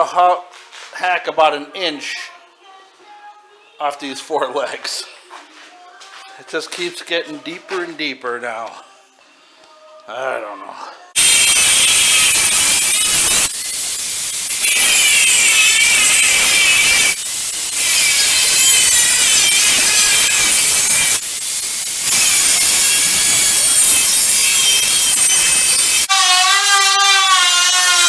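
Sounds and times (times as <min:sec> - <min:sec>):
power tool cutting: 0:11.2 - 0:28.0.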